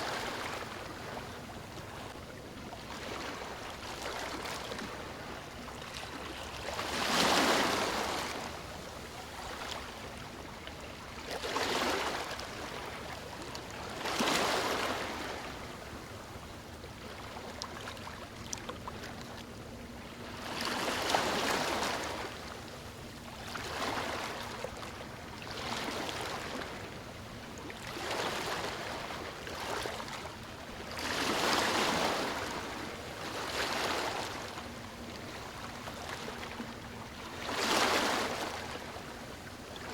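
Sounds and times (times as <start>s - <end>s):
sea waves breaking on beach: 6.1s - 8.5s, 31.0s - 34.5s, 37.3s - 39.9s.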